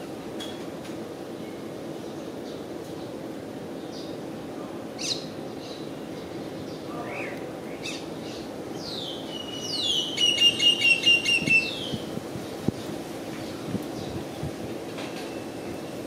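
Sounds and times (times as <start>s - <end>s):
bird chirping and calling: 6.7s - 12.0s.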